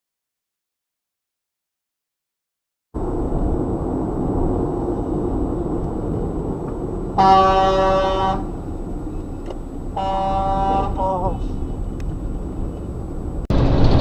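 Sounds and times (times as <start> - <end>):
car road and engine noise: 3.0 - 14.0
car horn: 7.2 - 8.6, 9.9 - 11.5.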